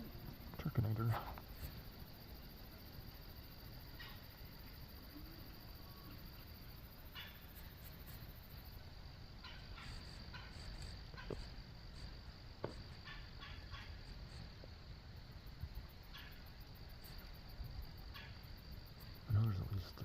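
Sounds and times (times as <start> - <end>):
distant turkeys calling: 3.9 - 4.7, 7.0 - 8.1, 9.3 - 14.4, 16.0 - 16.6, 18.0 - 18.5.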